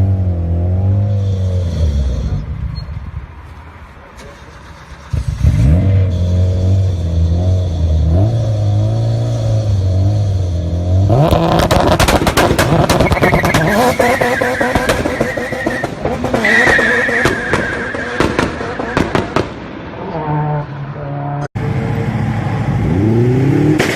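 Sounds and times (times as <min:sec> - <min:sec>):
tyre squeal: 0:01.2 - 0:03.1, 0:12.9 - 0:18.2
car engine at high revs: 0:05.1 - 0:23.9
exhaust crackling pops: 0:11.3 - 0:19.8.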